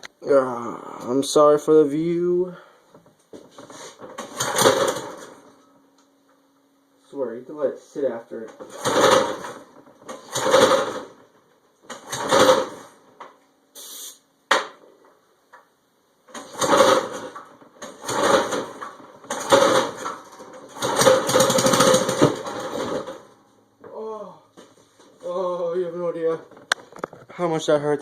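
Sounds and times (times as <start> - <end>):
recoil starter pulls: 3.5 - 5.5, 8.5 - 13.4, 16.3 - 23.4
small engine cranking: 4.2 - 5.4, 8.6 - 11.2, 11.9 - 13.0, 16.3 - 23.3.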